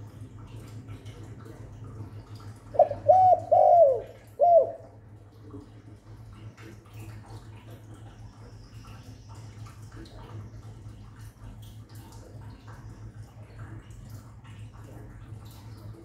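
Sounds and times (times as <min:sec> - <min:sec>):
low steady hum: 0:00.0 - 0:16.0
dove cooing: 0:02.6 - 0:05.1.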